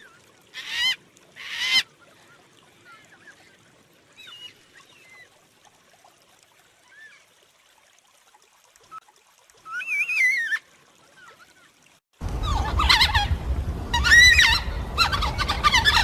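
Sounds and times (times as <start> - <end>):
cockatoos calling: 12.3 - 16.0.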